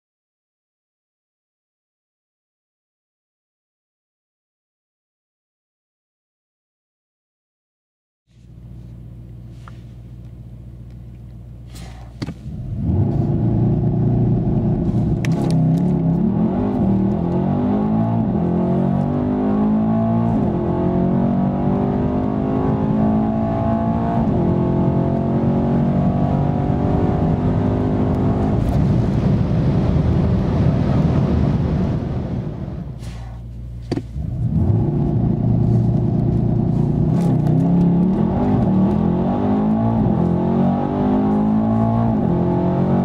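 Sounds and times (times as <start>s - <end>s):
gear upshifts: 11.1s - 19.1s, 32.9s - 40.4s
car engine revving: 11.6s - 43.0s.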